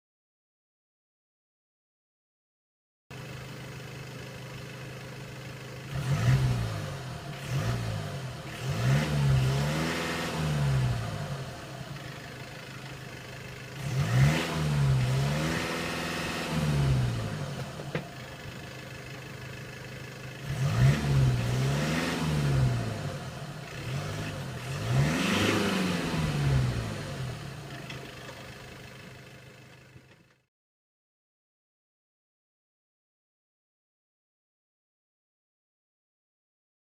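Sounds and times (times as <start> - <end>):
diesel car engine revving: 3.1 - 30.4.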